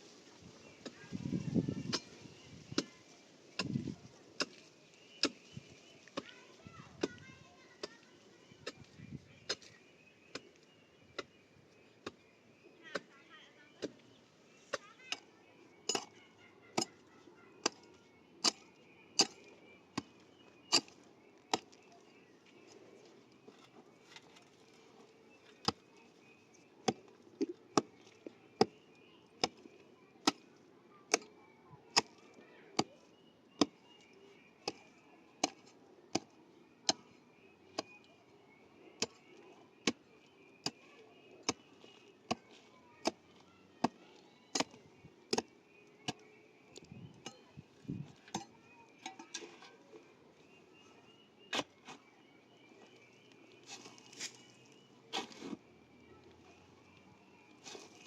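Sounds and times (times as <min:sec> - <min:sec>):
hand tool striking: 0:15.9 - 0:16.2.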